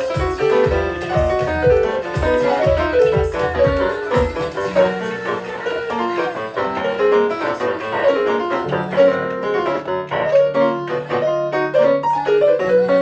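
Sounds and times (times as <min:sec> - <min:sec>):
held bass line: 0:00.0 - 0:05.0
piano ensemble playing: 0:00.0 - 0:13.0.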